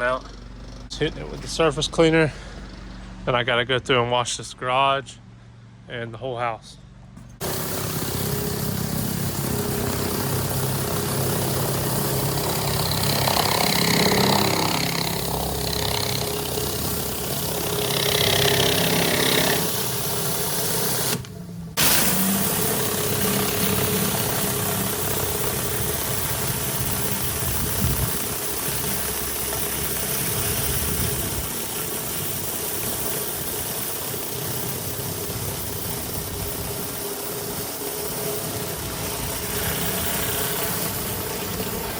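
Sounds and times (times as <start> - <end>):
pressure washer engine running: 7.4 - 41.9.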